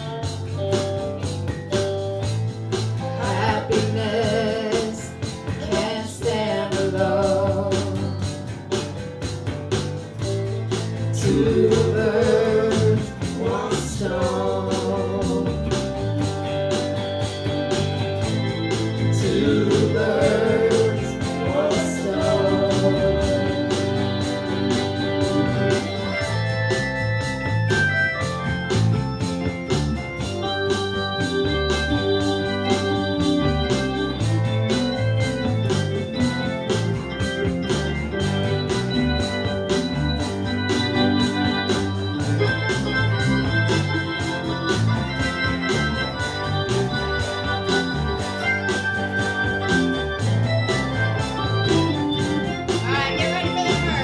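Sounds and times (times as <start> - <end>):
organ-toned keyboard: 0.0 - 54.0
steady drum beat: 0.0 - 54.0.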